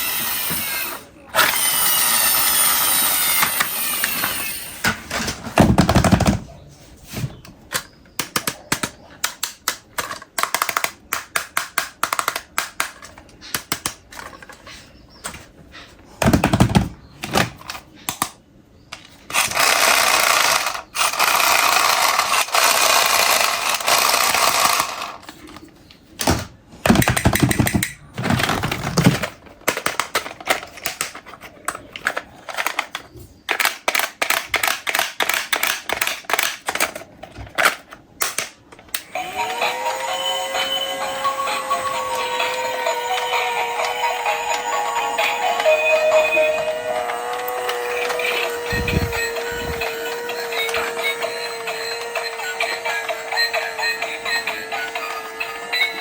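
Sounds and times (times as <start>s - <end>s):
plastic clicking and clattering: 7.7s - 14.6s, 21.2s - 39.1s.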